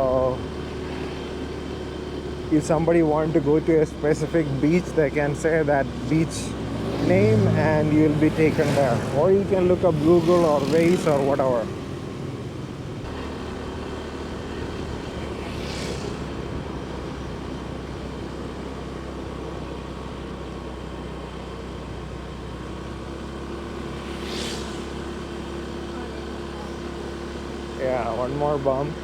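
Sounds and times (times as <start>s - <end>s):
motorcycle engine running: 0.0s - 29.0s
brief hiss: 24.0s - 25.2s.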